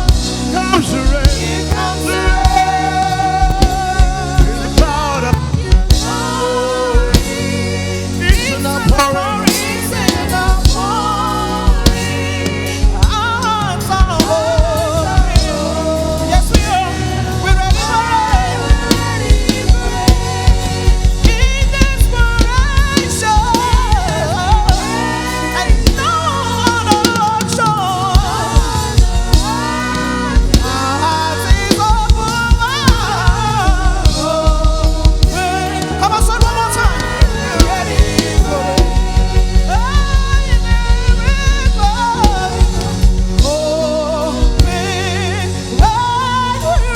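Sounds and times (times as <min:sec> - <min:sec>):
gospel band playing: 0:00.0 - 0:46.9
sliding instrumental melody: 0:00.0 - 0:46.9.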